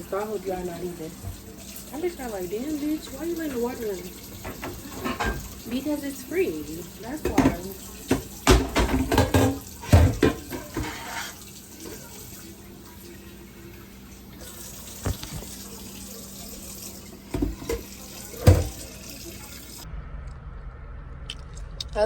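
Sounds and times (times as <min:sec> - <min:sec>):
tap running into sink: 0:01.1 - 0:01.8, 0:03.1 - 0:05.7, 0:07.1 - 0:12.3, 0:14.4 - 0:15.8, 0:16.4 - 0:19.8.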